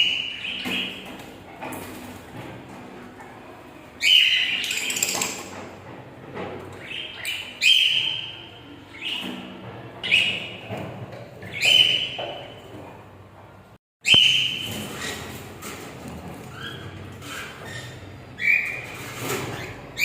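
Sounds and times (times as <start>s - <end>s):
birds chirping: 0.0s - 1.4s, 4.0s - 5.4s, 6.7s - 12.8s, 16.5s - 20.0s.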